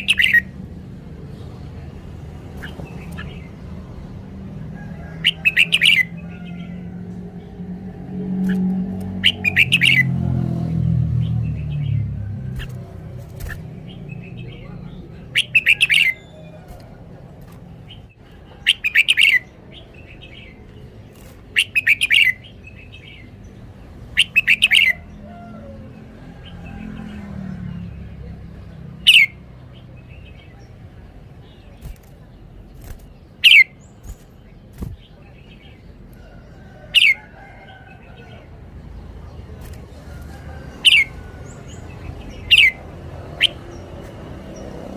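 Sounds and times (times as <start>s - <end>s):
bird warbling song: 0.0s - 0.6s, 2.4s - 3.8s, 4.8s - 6.8s, 8.3s - 25.7s, 29.0s - 38.6s, 39.2s - 44.8s
bird call notes: 43.4s - 43.8s.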